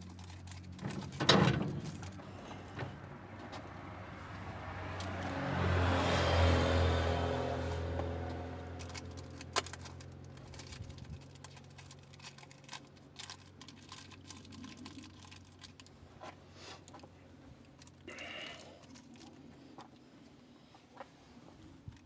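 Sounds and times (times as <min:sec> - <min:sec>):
car engine humming: 0:00.0 - 0:13.8.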